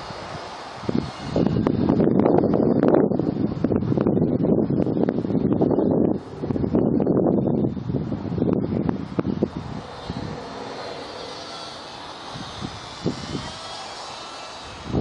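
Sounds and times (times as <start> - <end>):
wind buffeting microphone: 0.0 - 15.0
model plane motor whirring: 9.2 - 15.0.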